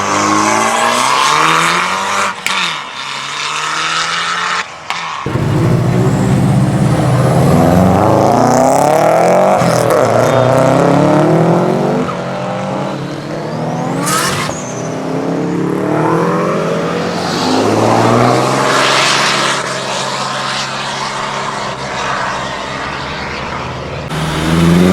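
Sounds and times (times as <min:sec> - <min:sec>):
high whine burst: 0:05.3 - 0:08.9
car engine accelerating: 0:05.3 - 0:12.8, 0:13.6 - 0:24.9.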